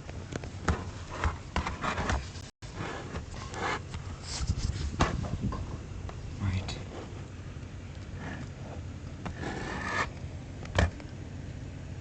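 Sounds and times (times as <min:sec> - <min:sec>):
wind gusting against microphone: 0:03.3 - 0:07.6.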